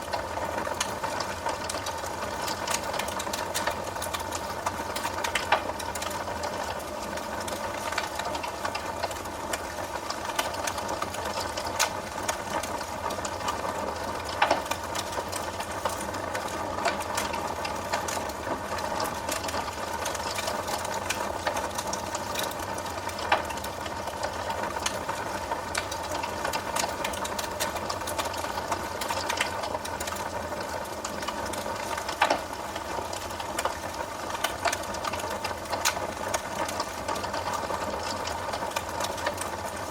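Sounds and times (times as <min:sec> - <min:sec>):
wood fire crackling: 0:00.0 - 0:39.9
loud pops of burning wood: 0:00.7 - 0:06.2, 0:14.2 - 0:18.4, 0:19.0 - 0:25.0, 0:31.5 - 0:33.8, 0:34.4 - 0:39.5.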